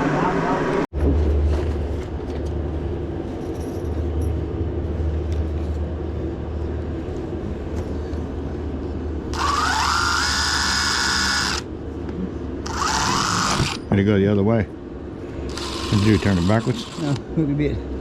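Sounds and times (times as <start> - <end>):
power drill whining: 9.3 - 11.7, 12.6 - 13.8, 15.5 - 17.2.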